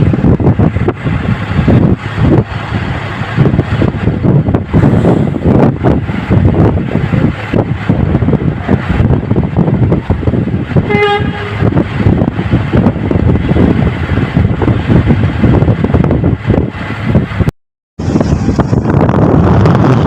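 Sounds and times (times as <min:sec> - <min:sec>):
wind buffeting microphone: 0:00.0 - 0:20.0
short horn toot: 0:10.8 - 0:11.7.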